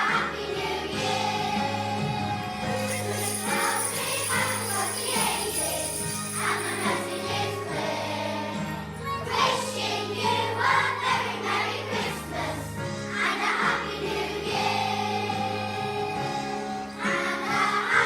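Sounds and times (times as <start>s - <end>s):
children's choir singing: 0.0s - 18.0s
instrumental accompaniment: 2.0s - 12.1s
small metal bells shaking: 2.7s - 7.6s.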